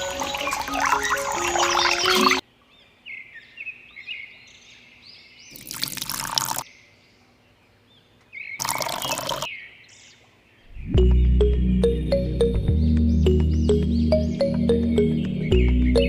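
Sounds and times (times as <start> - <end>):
high bird chirps: 0.0 - 2.4, 8.4 - 9.7, 10.6 - 16.0
water pouring: 0.0 - 2.4, 5.6 - 6.6, 8.6 - 9.5.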